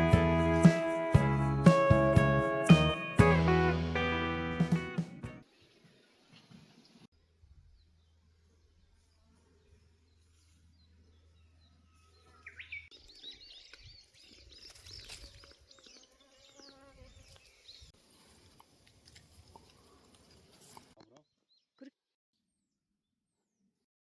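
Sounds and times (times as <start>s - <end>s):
small birds chirping: 5.5s - 18.6s.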